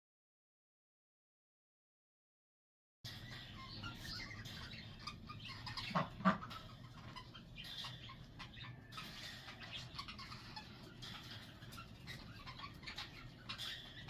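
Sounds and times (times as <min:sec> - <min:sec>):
birds chirping: 0:03.0 - 0:14.0.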